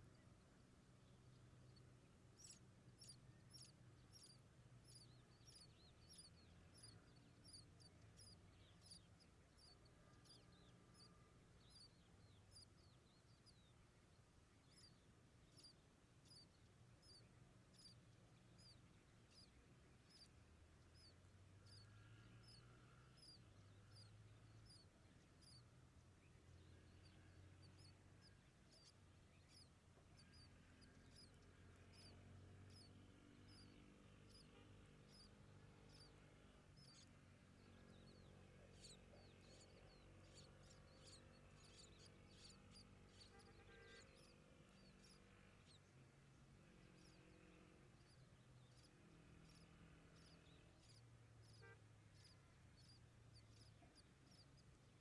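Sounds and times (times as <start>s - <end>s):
bird chicks cheeping: 0.0s - 55.0s.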